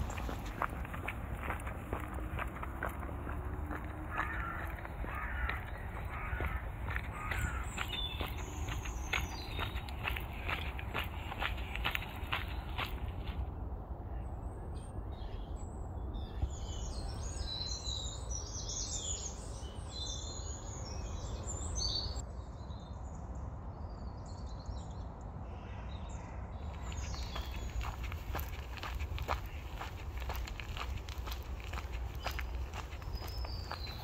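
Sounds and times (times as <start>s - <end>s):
small birds chirping: 0.0s - 13.4s, 26.6s - 34.0s
footsteps on gravel: 0.0s - 13.5s, 26.7s - 34.0s
steady low rumble: 0.0s - 17.3s, 26.6s - 34.0s.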